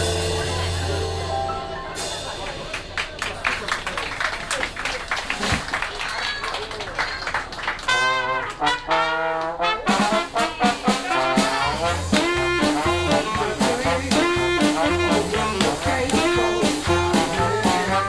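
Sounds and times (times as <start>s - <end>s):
walking bass: 0.0s - 3.4s, 9.4s - 18.0s
jazz band playing: 0.0s - 3.5s, 7.8s - 18.0s
drums: 0.0s - 18.0s
held horn notes: 7.8s - 18.0s.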